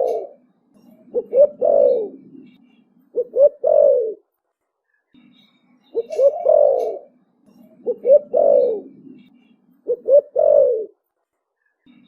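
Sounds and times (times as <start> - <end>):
dove cooing: 0.0 - 0.4, 1.1 - 2.5, 3.1 - 4.2, 6.0 - 7.2, 7.8 - 11.0.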